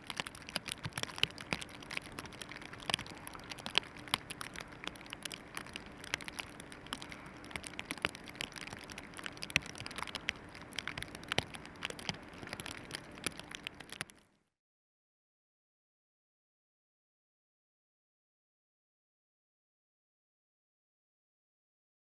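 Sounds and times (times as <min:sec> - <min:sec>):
snow pattering: 0:00.0 - 0:14.2.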